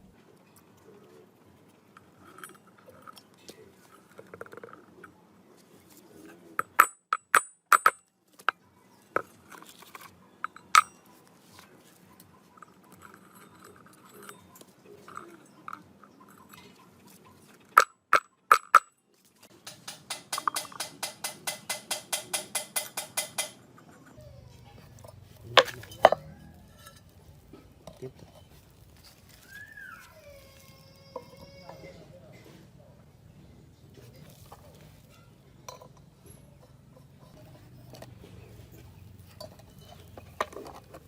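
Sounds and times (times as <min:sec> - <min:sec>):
metal tools clinking: 0:09.1 - 0:11.5, 0:12.5 - 0:18.9, 0:19.6 - 0:29.7, 0:34.1 - 0:41.0.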